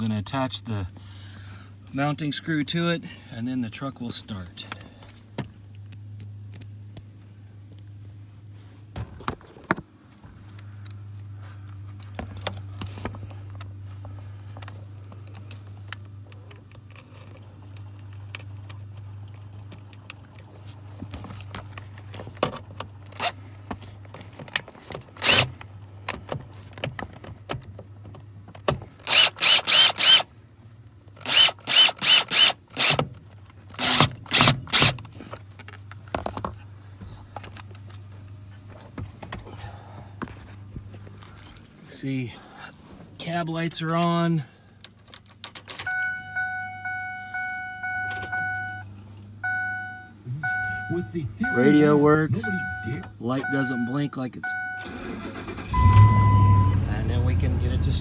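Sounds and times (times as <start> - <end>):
power drill driving screw: 25.2 - 25.5, 29.0 - 30.2, 31.2 - 33.0, 33.8 - 35.0.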